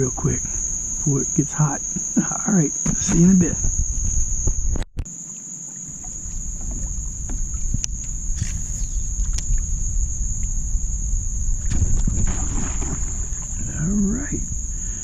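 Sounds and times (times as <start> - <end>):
low rumbling noise: 0.0 - 5.0, 5.9 - 15.0
insects buzzing: 0.0 - 15.0
faint knocks from kayak: 5.7 - 8.6.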